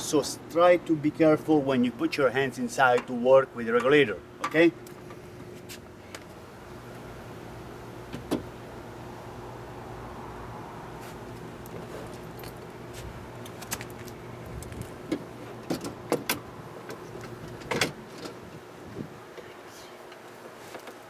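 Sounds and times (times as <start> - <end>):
steady low hum: 0.0 - 20.5
metal clinks and knocks: 11.7 - 12.7.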